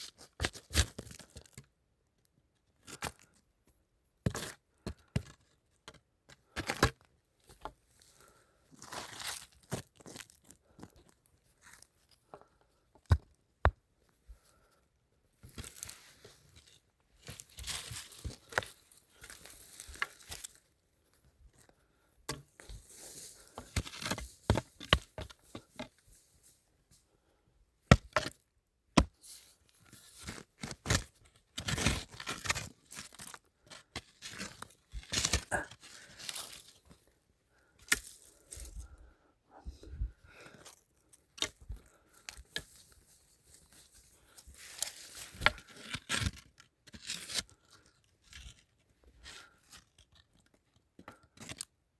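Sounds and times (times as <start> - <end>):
scraping and crunching of soil: 0.0 - 1.7, 7.5 - 12.2, 15.4 - 21.7, 22.4 - 26.6, 29.0 - 37.0, 37.6 - 39.0, 40.5 - 51.8.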